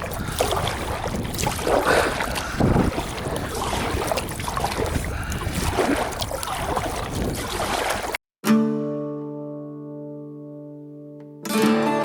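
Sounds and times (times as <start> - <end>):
paddle splashing water: 0.0 - 8.2
wind on microphone: 0.0 - 8.2.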